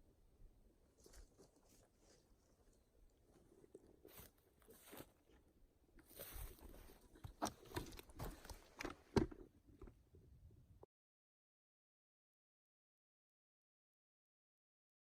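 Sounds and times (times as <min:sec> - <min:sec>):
footsteps crunching on forest floor: 0:01.0 - 0:08.8.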